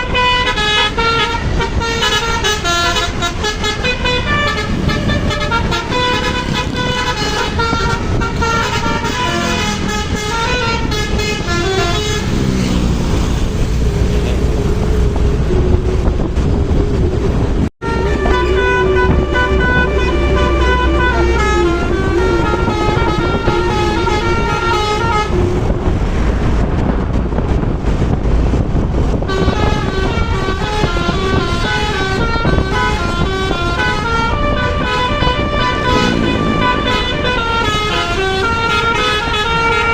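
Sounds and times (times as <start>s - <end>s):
musical air horns playing tune: 0.0s - 12.5s, 17.8s - 25.7s, 29.3s - 39.9s
passing vehicle rumble: 0.0s - 39.9s.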